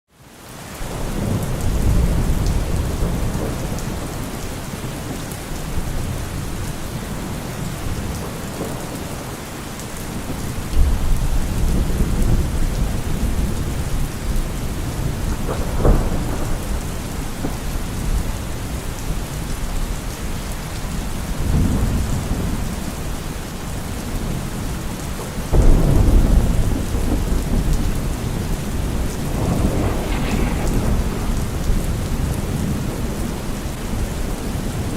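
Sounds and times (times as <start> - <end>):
heavy rain falling: 0.2 - 34.9
low thunder rumbling: 0.9 - 9.2, 10.1 - 19.8, 25.2 - 34.9.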